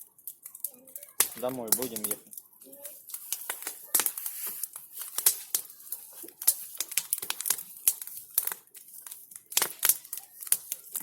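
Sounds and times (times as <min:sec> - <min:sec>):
bonfire crackling and popping: 0:00.0 - 0:11.0.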